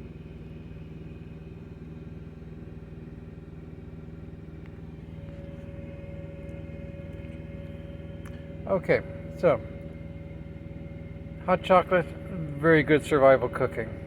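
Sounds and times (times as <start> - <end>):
steady mechanical hum: 0.0 - 14.0
higher steady tone: 4.9 - 14.0.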